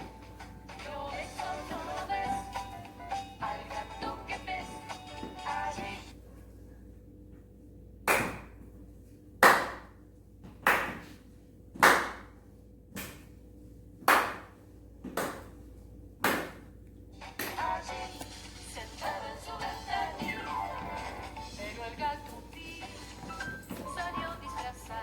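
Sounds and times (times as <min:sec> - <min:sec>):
slow hand claps with echo: 0:08.1 - 0:08.6, 0:09.4 - 0:09.9, 0:11.8 - 0:12.3, 0:14.1 - 0:14.6.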